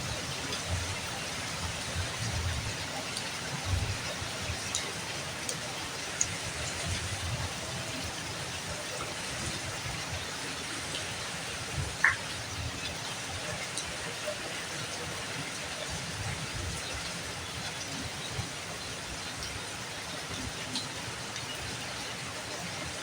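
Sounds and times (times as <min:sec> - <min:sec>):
steady rain falling: 0:00.0 - 0:23.0
drips ticking: 0:10.8 - 0:14.4.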